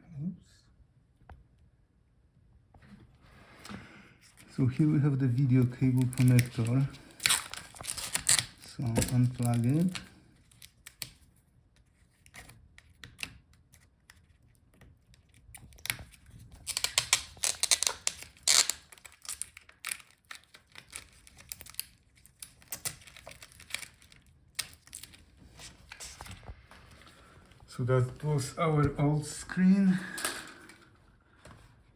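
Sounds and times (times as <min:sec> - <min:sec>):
crinkling and tearing: 0:04.2 - 0:27.7.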